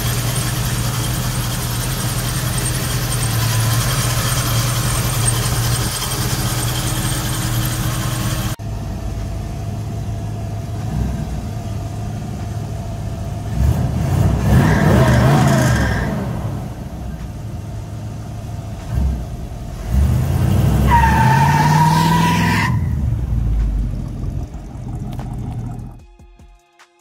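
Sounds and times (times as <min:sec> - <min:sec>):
car engine revving driving past: 0:18.8 - 0:26.0.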